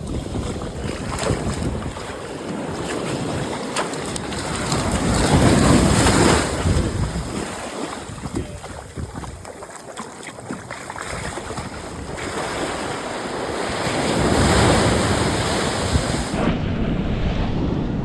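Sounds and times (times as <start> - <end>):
wind buffeting microphone: 0.0 - 9.7, 10.3 - 18.0
ocean surf washing in: 12.0 - 18.0.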